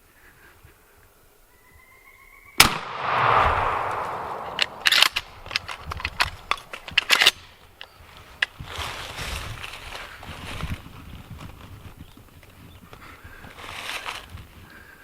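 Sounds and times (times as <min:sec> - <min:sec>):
shotgun blast: 0:02.6 - 0:06.7
sharp crackles and rustles: 0:02.7 - 0:15.0.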